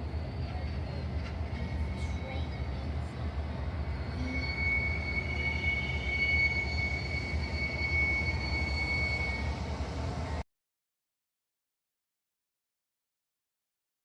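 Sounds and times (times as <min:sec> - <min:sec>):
train rumbling past: 0:00.0 - 0:10.4
high wheel squeal: 0:03.8 - 0:09.9.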